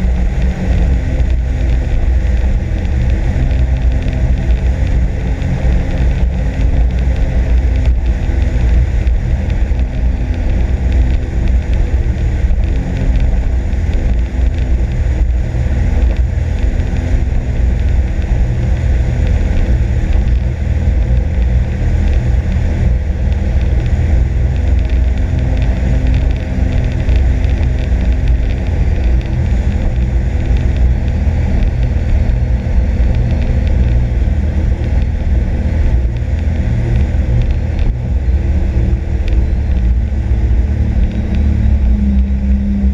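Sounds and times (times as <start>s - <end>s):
jet ski engine drone: 0.0s - 42.9s.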